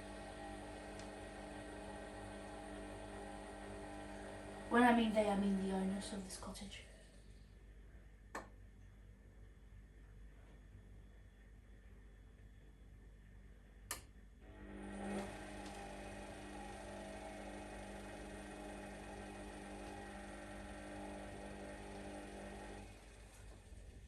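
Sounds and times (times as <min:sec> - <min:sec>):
washing machine drum motor whir: 0:00.0 - 0:06.2, 0:14.4 - 0:24.0.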